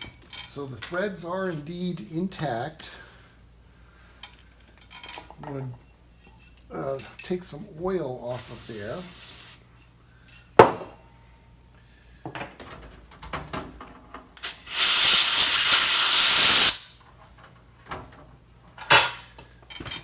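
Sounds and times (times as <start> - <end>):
pressurised spray hissing: 8.4 - 9.6, 14.4 - 16.9.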